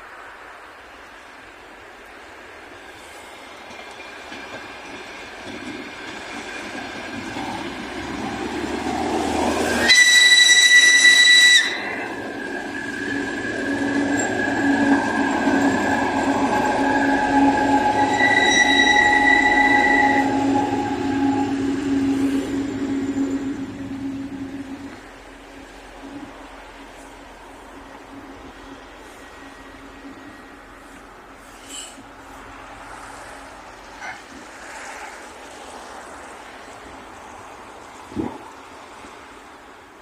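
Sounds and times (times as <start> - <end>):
diesel train running: 0.0 - 40.0
train horn blast: 9.4 - 27.2
high tone: 12.9 - 25.1.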